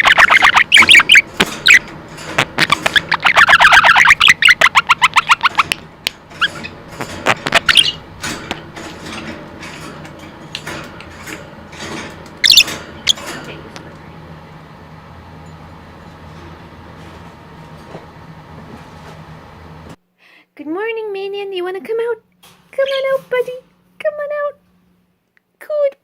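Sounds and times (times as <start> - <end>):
budgerigar chattering: 0.0 - 1.8, 2.6 - 5.8, 7.4 - 8.0, 12.4 - 12.6.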